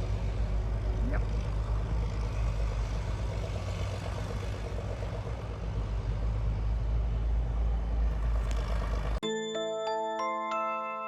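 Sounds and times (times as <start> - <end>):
snow plow engine droning: 0.0 - 9.2.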